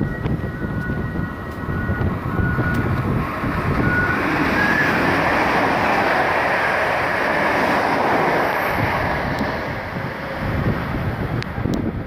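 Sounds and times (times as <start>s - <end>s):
high-pitched wheel squeals: 0.0s - 5.5s
train wheels rushing on rail: 0.0s - 12.0s.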